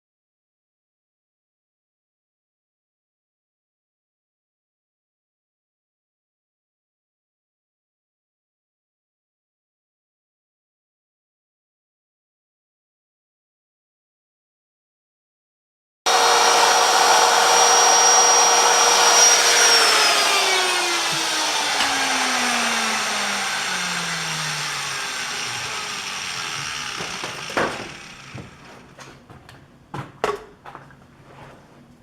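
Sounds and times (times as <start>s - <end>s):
die grinder whining and spinning down: 16.1s - 29.1s
sharp knocks: 26.9s - 28.5s.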